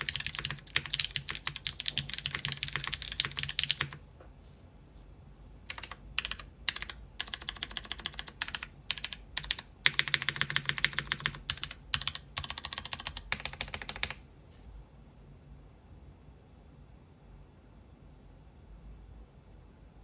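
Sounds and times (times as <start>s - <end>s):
fast typing on mechanical keyboard: 0.0s - 4.0s, 5.7s - 14.2s.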